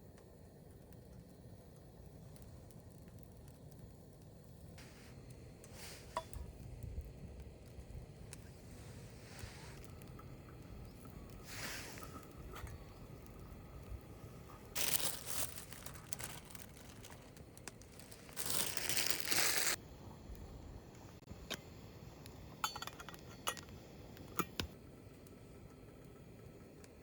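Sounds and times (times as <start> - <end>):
packaging crinkling and rustling: 14.5 - 19.8.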